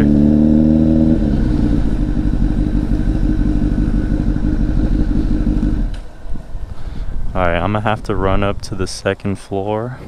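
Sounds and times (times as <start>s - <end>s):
motorcycle engine idling: 0.0s - 7.3s.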